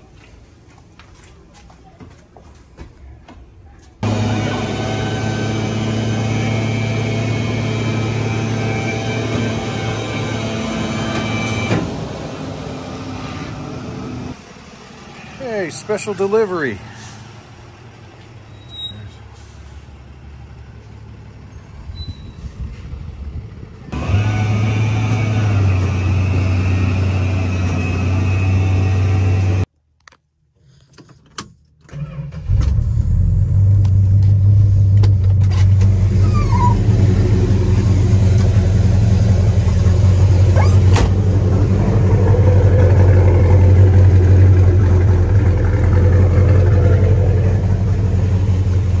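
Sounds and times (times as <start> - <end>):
car engine idling: 32.9 - 49.0.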